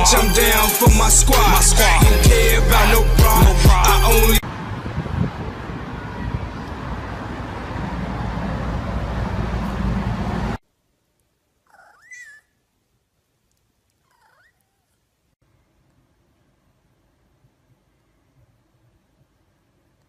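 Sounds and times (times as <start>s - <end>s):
cat meowing: 14.1s - 14.9s.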